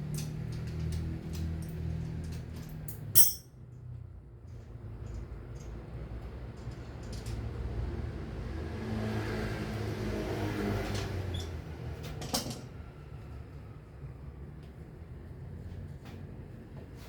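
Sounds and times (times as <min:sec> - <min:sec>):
vehicle passing by: 0:07.8 - 0:11.9.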